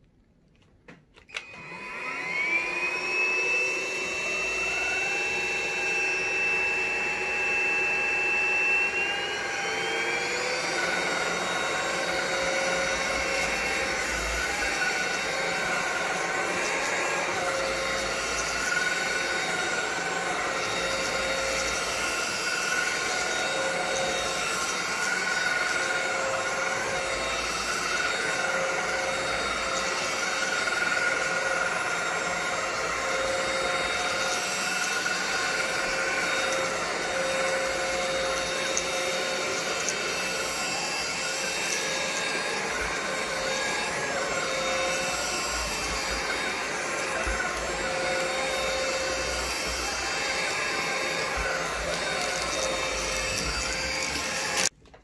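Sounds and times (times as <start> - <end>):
vacuum cleaner motor whining: 0.7 - 55.0.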